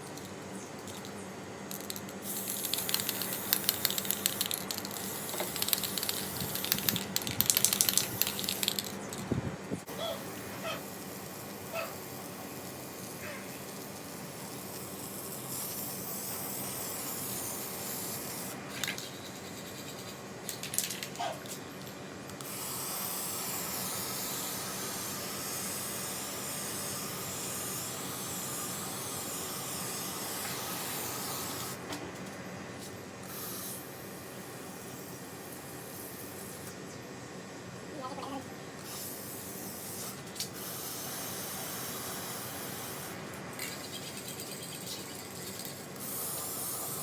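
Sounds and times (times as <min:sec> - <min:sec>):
hissing spray: 0:22.4 - 0:31.8, 0:38.8 - 0:47.0.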